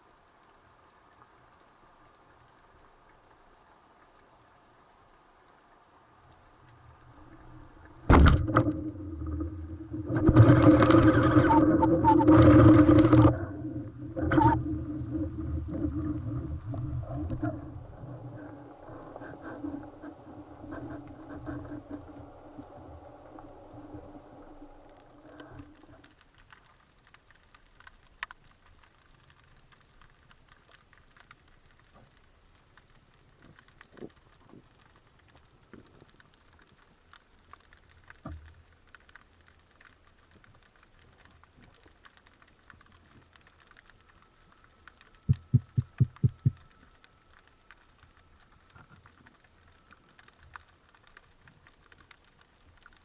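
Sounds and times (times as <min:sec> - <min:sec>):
dense underwater crackle: 0:00.0 - 0:53.0
low hum: 0:06.7 - 0:26.0.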